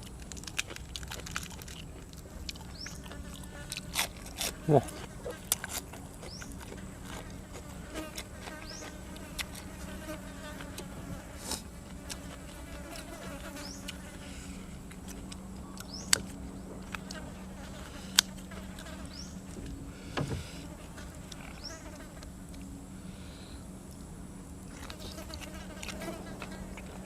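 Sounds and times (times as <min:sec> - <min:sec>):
fly buzzing: 0:06.3 - 0:14.8, 0:17.0 - 0:22.2, 0:24.7 - 0:27.0.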